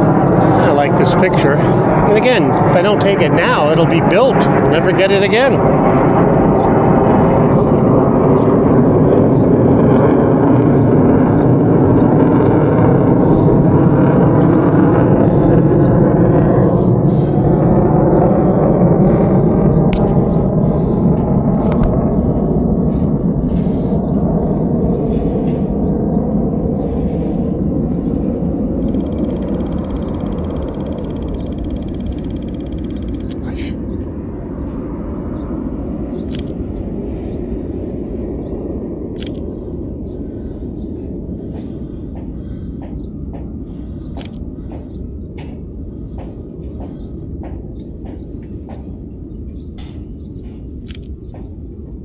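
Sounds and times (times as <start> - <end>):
wind rushing over microphone: 0.0 - 52.0
fast even ticking: 28.8 - 33.4.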